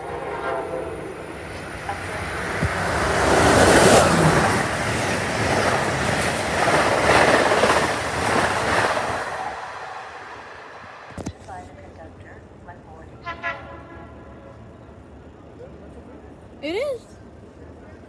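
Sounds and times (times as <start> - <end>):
train wheels rushing on rails: 0.0 - 11.2.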